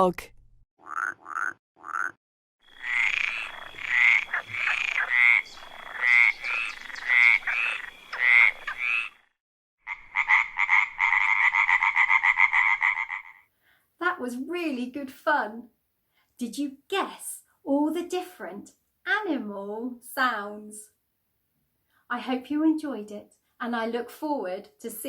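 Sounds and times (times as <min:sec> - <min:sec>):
fast pulsing frog trill: 0:00.8 - 0:09.2, 0:09.9 - 0:13.4
frogs croaking: 0:00.8 - 0:13.5.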